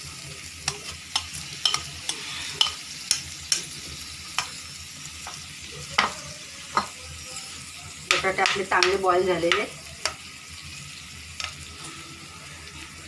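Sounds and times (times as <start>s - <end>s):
filling sizzling in hot oil: 0.0s - 13.0s
spatula tapping and scraping pan: 0.6s - 3.7s, 8.1s - 10.2s.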